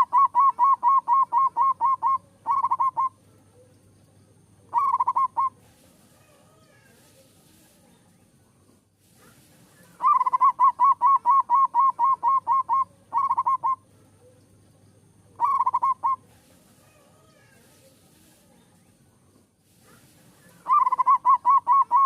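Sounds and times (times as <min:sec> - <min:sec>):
dove cooing: 0:00.0 - 0:03.7, 0:04.6 - 0:05.8, 0:09.8 - 0:14.4, 0:15.3 - 0:17.5, 0:20.4 - 0:22.0.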